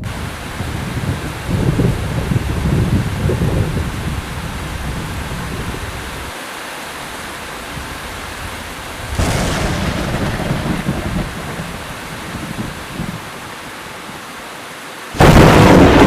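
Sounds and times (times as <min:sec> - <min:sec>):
low thunder rumble: 0:00.0 - 0:06.3, 0:07.8 - 0:13.6, 0:15.2 - 0:16.0
heavy rain: 0:00.0 - 0:16.0
sharp thunder crack: 0:09.0 - 0:13.3, 0:15.2 - 0:16.0.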